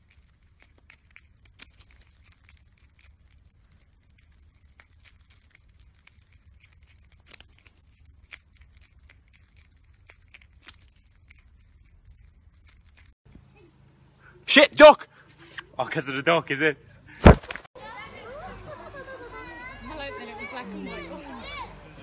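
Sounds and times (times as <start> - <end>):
animal crunching and chewing: 0.0 - 13.2.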